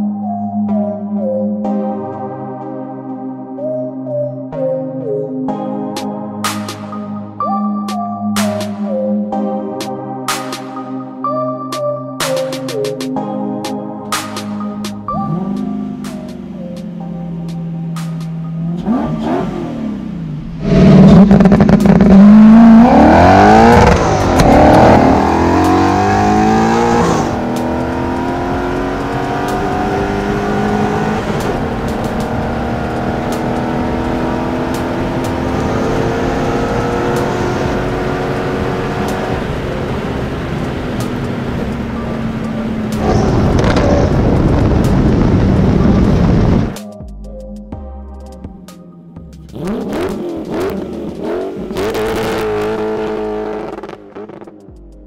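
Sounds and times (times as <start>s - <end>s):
car engine revving: 15.1s - 16.6s, 17.4s - 46.8s, 49.4s - 54.7s.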